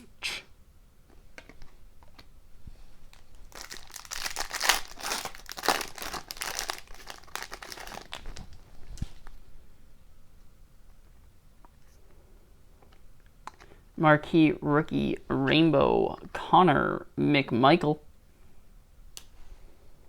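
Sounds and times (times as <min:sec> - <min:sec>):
wrapper rustling: 0:03.0 - 0:09.4
card pack wrapper crinkling: 0:03.1 - 0:09.3.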